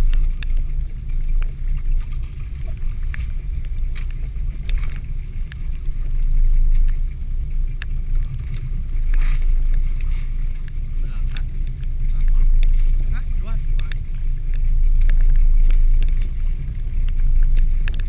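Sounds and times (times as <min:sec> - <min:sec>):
boat motor rumbling: 0:00.0 - 0:18.0
sharp ticks: 0:10.6 - 0:18.0.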